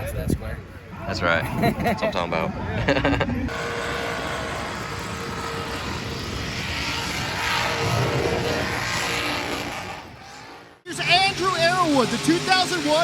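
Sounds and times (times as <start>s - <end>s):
broad rushing noise: 3.5s - 13.0s
vehicle engine running: 3.5s - 13.0s.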